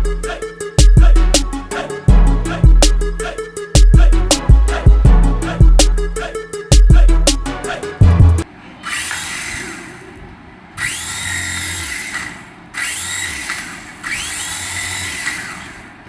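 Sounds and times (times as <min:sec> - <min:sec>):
toy motor whirring: 0:08.8 - 0:10.2, 0:10.8 - 0:16.0.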